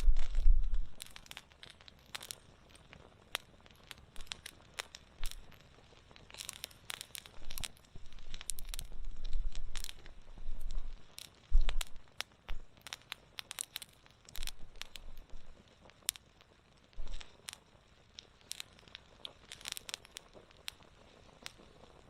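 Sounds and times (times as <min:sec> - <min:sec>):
low rumbles: 0:00.0 - 0:01.1, 0:07.4 - 0:12.7
wood fire crackling and popping: 0:00.0 - 0:22.0.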